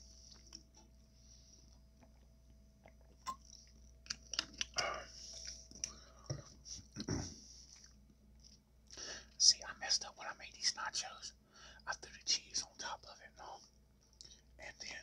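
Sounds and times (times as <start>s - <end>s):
chewing and biting crunchy food: 1.7s - 6.0s.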